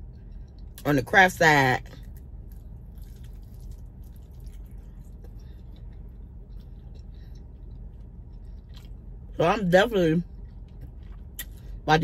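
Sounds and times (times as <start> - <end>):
low steady hum: 0.0 - 12.0
person chewing: 1.9 - 9.4, 10.3 - 11.8.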